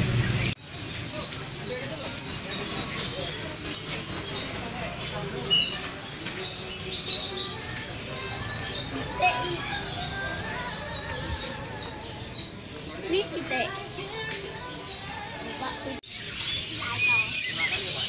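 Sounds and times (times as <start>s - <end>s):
cricket chirping: 0.6s - 18.0s.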